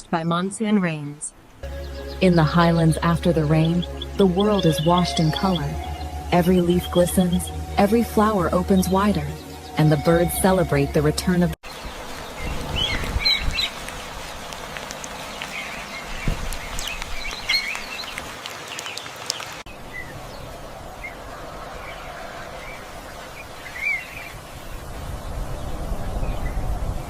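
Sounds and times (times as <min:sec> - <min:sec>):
birds chirping and calling: 0:01.6 - 0:10.7, 0:11.7 - 0:13.9, 0:15.2 - 0:20.4, 0:21.8 - 0:24.5
outdoor ambience hiss: 0:11.6 - 0:27.0.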